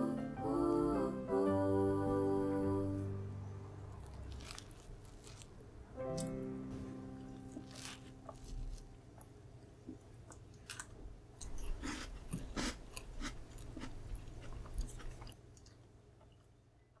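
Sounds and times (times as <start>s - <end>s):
chewing crunches: 3.9s - 6.4s, 7.3s - 16.6s.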